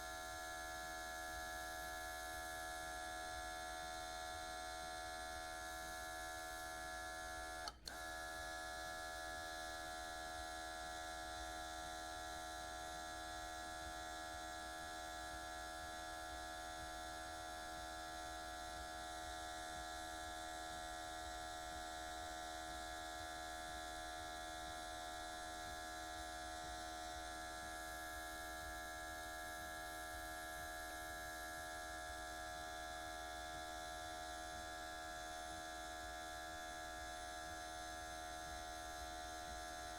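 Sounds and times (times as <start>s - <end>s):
compressor motor whine: 0.0s - 11.1s.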